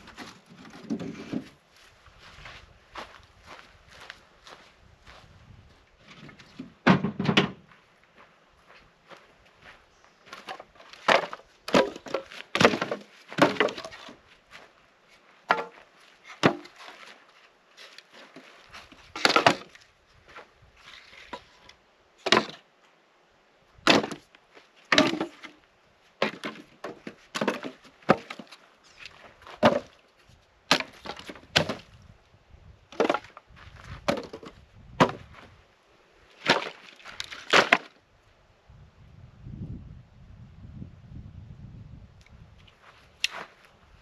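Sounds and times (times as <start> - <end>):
axe chopping wood: 11.1 - 14.0, 16.4 - 16.8, 19.2 - 19.7, 23.8 - 24.2, 24.9 - 25.5, 26.2 - 28.5, 29.6 - 29.9, 30.7 - 31.9, 34.0 - 35.3, 36.4 - 37.9.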